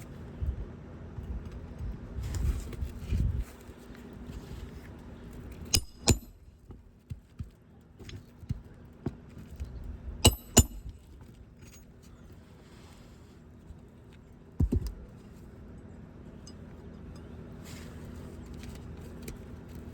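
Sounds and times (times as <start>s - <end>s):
hammer striking nails: 5.7s - 6.4s, 10.2s - 11.0s.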